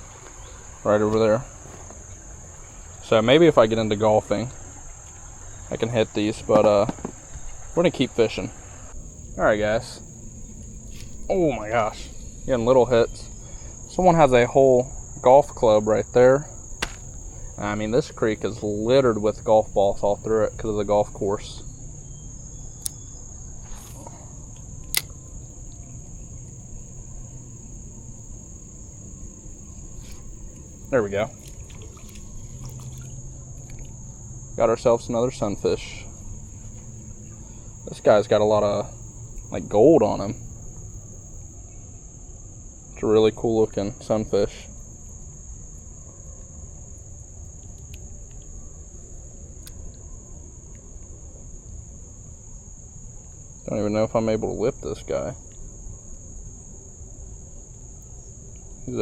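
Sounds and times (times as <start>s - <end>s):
insects buzzing: 0.0s - 59.0s
low outdoor rumble: 0.0s - 59.0s
sharp clicks: 24.6s - 25.8s.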